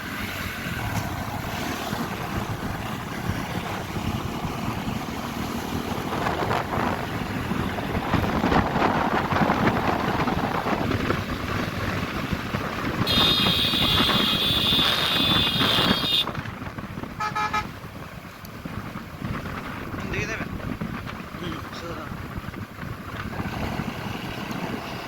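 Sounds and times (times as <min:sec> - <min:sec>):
wind and road noise: 0:00.0 - 0:25.0
vehicle horn blaring: 0:13.0 - 0:16.3, 0:17.2 - 0:17.7
low-pitched horn beeps: 0:13.1 - 0:16.3.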